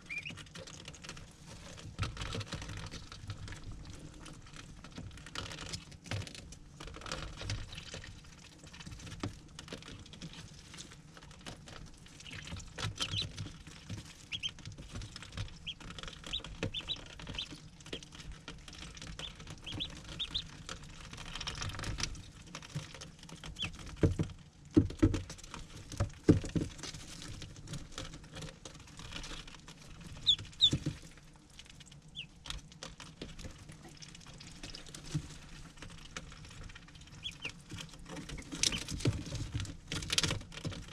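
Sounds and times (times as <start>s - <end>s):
ducklings peeping: 0.0s - 0.6s, 12.1s - 18.4s, 19.0s - 20.6s, 23.4s - 23.9s, 30.0s - 31.0s, 32.1s - 32.5s, 37.0s - 39.0s
pattering taps and scratches: 0.0s - 40.9s.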